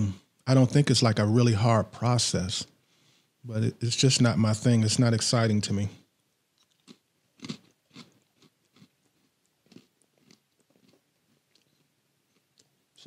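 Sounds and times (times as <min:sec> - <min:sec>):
man chewing cracker crunches: 0:06.6 - 0:12.8.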